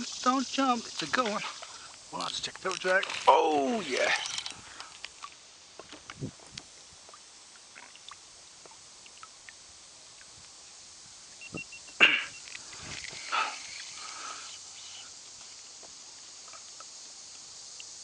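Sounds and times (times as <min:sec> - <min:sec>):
kayak and tackle clicks and knocks: 0:02.2 - 0:03.3.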